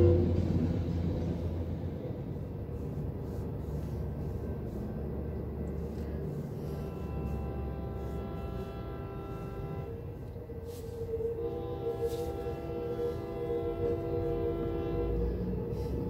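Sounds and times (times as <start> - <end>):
train rolling with low rumble: 0.0 - 16.0
sustained music chord: 6.5 - 10.2, 11.4 - 15.8.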